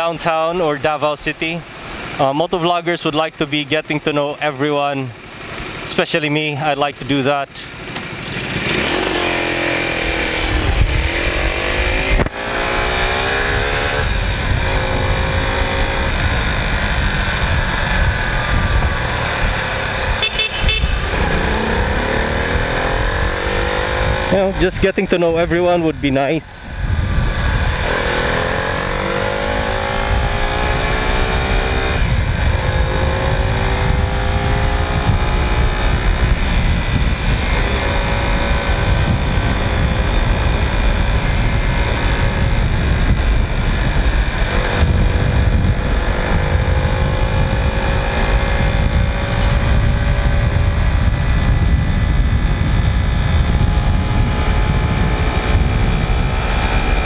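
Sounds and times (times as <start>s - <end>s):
motorcycle engine shifting gears: 7.7s - 24.7s, 26.8s - 57.0s
wind rushing over microphone: 8.1s - 57.0s.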